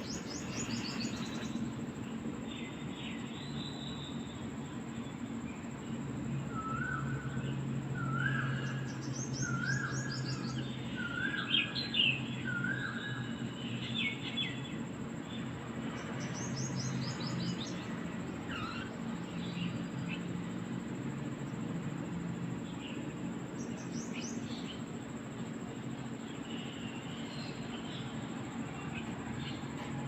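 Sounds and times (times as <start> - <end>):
high bird twittering: 0.0 - 1.6
steady low hum: 0.0 - 30.0.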